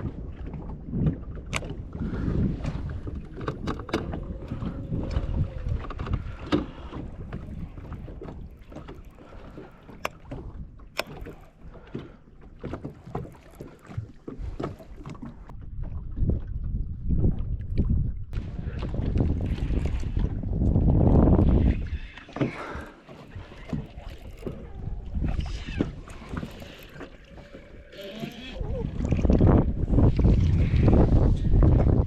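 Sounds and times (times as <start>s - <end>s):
wind and water rumble on a boat: 0.0s - 32.0s.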